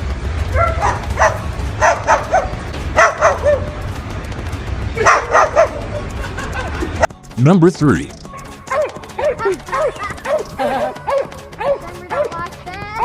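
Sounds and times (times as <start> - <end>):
dog yipping: 0.5 - 3.8, 5.0 - 6.1, 8.3 - 13.0.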